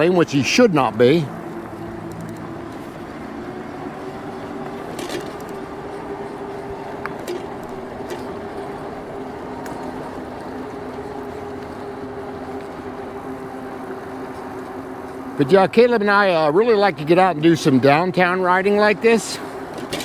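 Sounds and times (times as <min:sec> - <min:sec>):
rush of wind and tyres: 0:00.0 - 0:20.0
faint clicks: 0:01.4 - 0:03.2.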